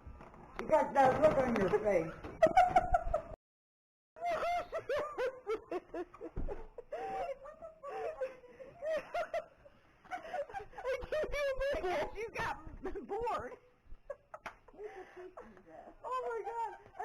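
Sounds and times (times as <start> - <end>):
women laughing: 2.3 - 3.4, 4.2 - 17.0.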